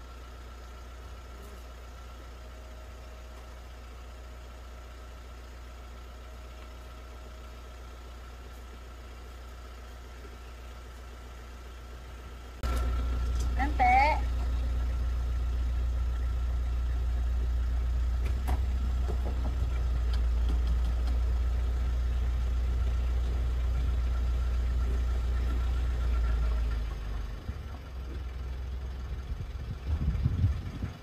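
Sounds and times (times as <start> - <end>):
car engine idling: 0.0 - 31.0
low bumps: 17.7 - 31.0.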